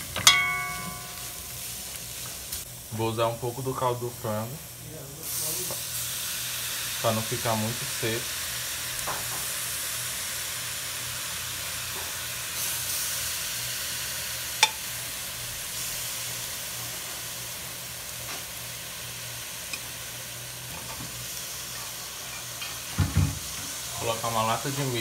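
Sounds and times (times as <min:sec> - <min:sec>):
chicken sizzling in a pan: 0:00.0 - 0:25.0
metal spoon clinking on pan: 0:00.2 - 0:01.3, 0:14.6 - 0:14.8.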